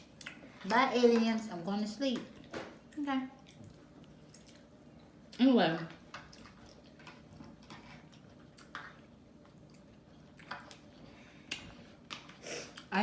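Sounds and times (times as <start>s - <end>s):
person chewing food: 2.4s - 5.3s, 6.2s - 12.9s.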